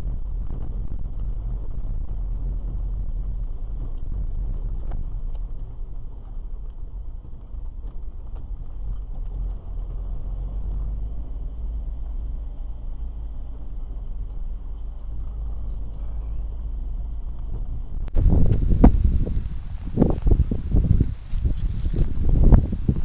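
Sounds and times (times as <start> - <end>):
car cabin road and engine rumble: 18.2 - 23.0.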